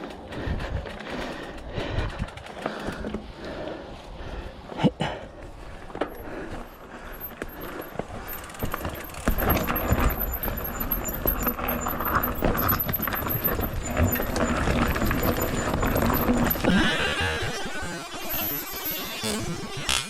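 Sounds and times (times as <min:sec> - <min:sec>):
footsteps on trail: 0:00.0 - 0:17.6
gear jangling: 0:06.0 - 0:19.4.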